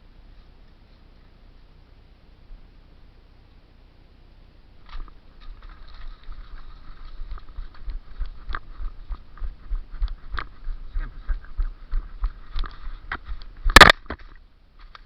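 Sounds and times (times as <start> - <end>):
crunching footsteps: 4.8 - 15.0
microphone bumps and rumble: 4.9 - 15.0.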